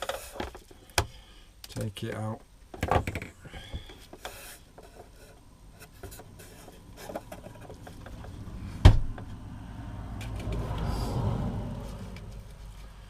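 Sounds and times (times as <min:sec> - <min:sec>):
wood rubbing and clicking: 0:01.7 - 0:09.4.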